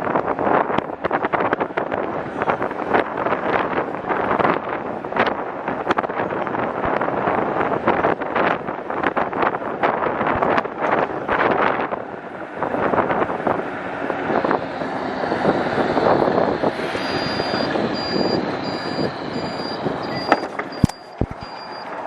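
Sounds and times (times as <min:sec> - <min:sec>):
wind and road noise rushing: 0:00.0 - 0:22.0
high electronic beep: 0:17.0 - 0:22.0.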